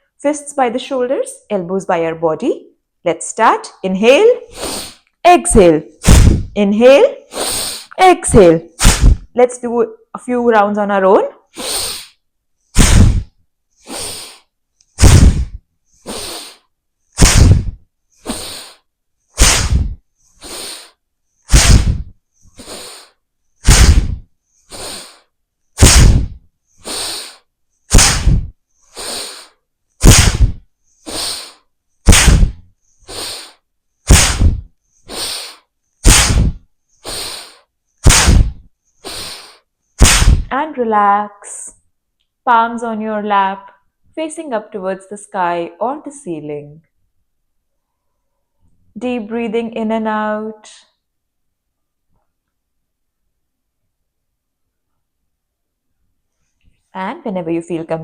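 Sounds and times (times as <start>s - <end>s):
forceful nasal breathing: 4.5s - 5.1s, 6.0s - 6.6s, 7.2s - 8.0s, 8.7s - 9.3s, 11.5s - 40.5s.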